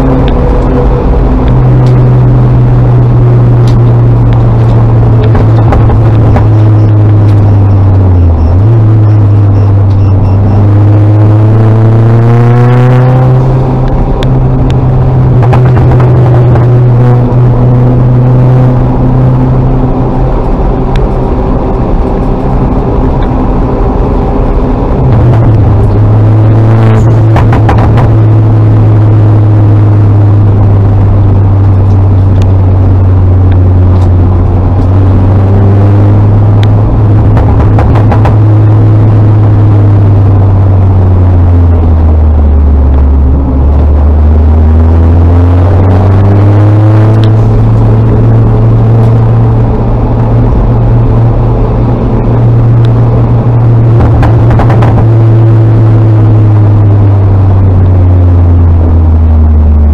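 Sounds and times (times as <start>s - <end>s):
car engine running: 0.0s - 59.9s.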